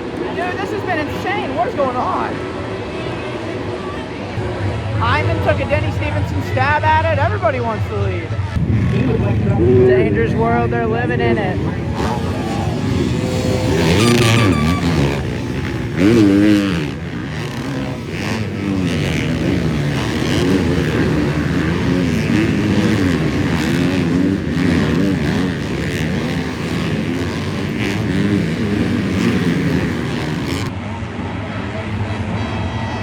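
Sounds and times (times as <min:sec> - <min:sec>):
motocross bikes revving: 0:11.5 - 0:30.7.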